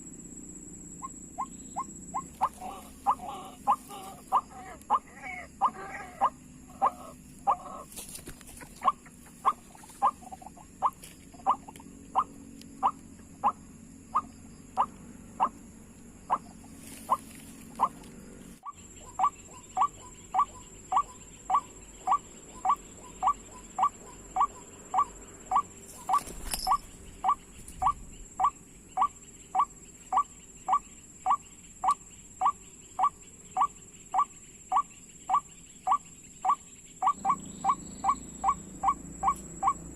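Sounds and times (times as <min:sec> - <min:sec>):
steady high-pitched whine: 0:00.0 - 0:39.9.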